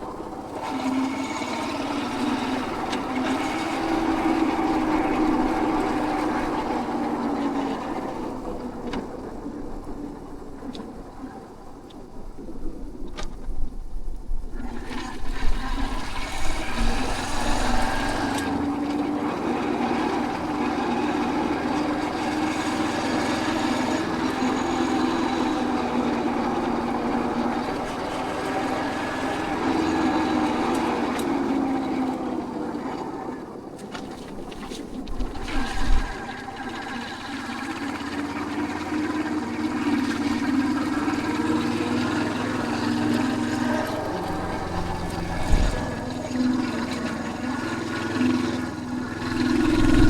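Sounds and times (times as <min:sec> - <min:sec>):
motorcycle engine running: 0:40.3 - 0:50.0.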